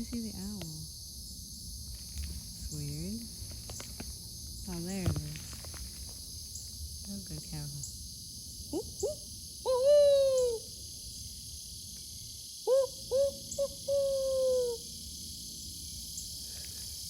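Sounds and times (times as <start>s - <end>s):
insect chirring: 0.0s - 17.0s
owl hooting: 8.7s - 10.7s, 12.6s - 14.9s.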